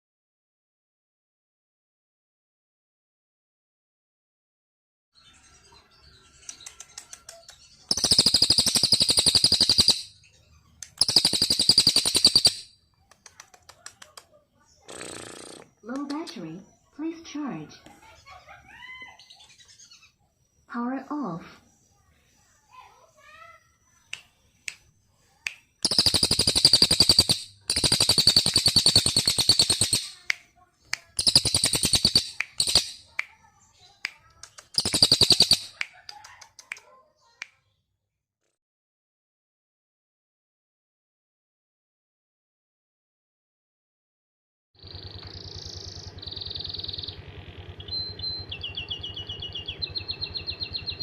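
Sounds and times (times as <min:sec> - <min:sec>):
songbird chirps: 0:05.2 - 0:37.9, 0:44.8 - 0:51.0
songbird fast trills: 0:06.4 - 0:10.2, 0:10.9 - 0:12.7, 0:25.3 - 0:30.4, 0:31.0 - 0:33.4, 0:34.5 - 0:36.3, 0:44.8 - 0:51.0.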